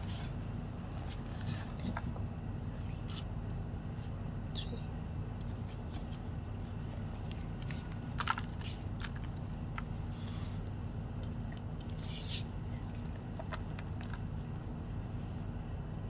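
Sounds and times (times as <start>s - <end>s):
steady low hum: 0.0s - 16.0s
chalk crunching and crumbling: 5.6s - 14.6s.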